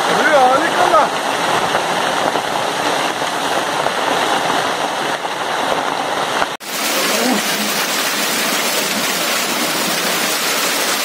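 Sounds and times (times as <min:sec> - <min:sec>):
heavy rain and hail pelting: 0:00.0 - 0:11.0.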